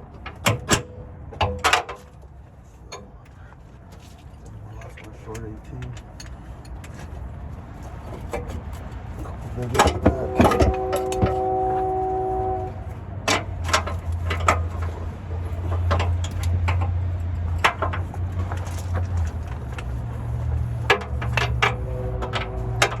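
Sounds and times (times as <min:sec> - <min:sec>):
whine of steady tones: 0:09.6 - 0:14.8, 0:20.2 - 0:23.0.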